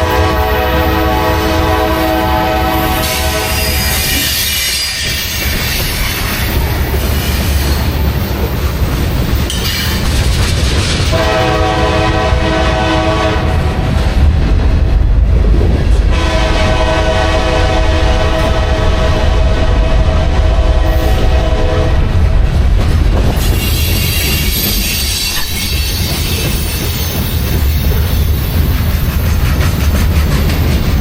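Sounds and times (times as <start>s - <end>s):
locomotive air horn: 0.0s - 4.2s, 11.1s - 13.8s, 16.1s - 22.1s
train rumbling past: 0.0s - 31.0s.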